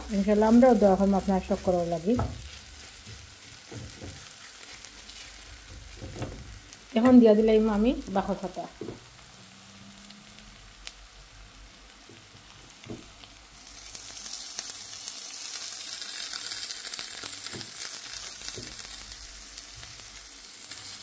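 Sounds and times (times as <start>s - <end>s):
spatula scraping wok: 0.0s - 7.3s
food sizzling in oil: 0.0s - 21.0s.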